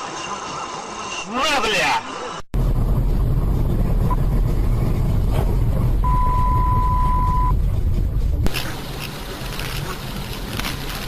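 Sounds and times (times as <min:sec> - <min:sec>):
car engine and road noise: 0:02.6 - 0:11.0
long steady beep: 0:06.0 - 0:07.5
short electronic beep: 0:06.0 - 0:07.5.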